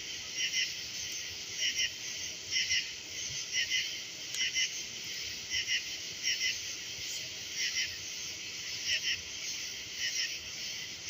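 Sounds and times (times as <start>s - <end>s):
steady high insect hiss: 0.0s - 11.0s.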